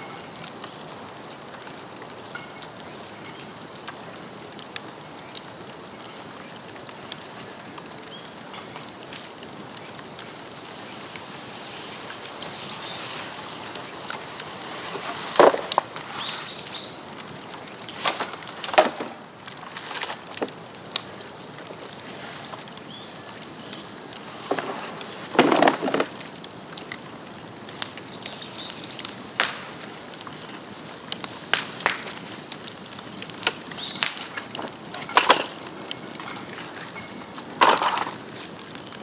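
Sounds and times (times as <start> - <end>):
bonfire cracking and popping: 0.0 - 39.0.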